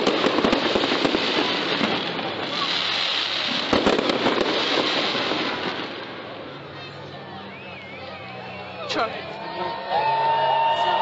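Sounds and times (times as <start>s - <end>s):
fireworks crackling pops: 0.0s - 6.5s.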